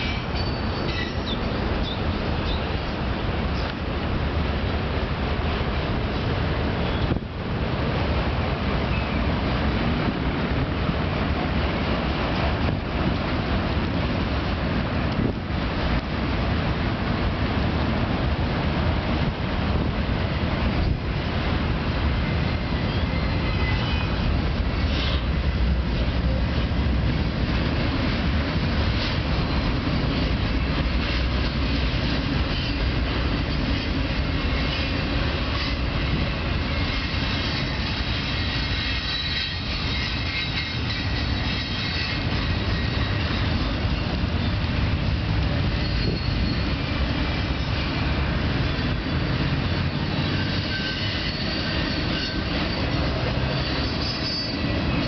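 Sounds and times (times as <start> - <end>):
faint high wheel squeal: 0.0 - 2.7, 22.7 - 24.2, 33.7 - 44.7, 45.6 - 48.1, 49.7 - 55.0
train wheels rumbling on rail: 0.0 - 55.0.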